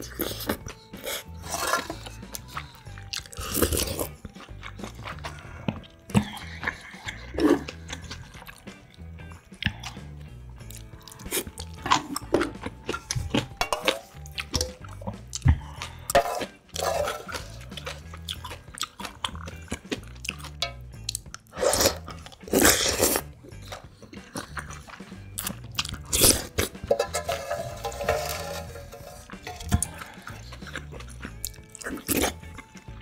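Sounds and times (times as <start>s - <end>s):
crunching and chewing food: 0.0s - 33.0s
utensils clicking on metal pot: 11.6s - 14.8s, 16.1s - 18.4s, 20.3s - 23.9s, 25.5s - 30.7s.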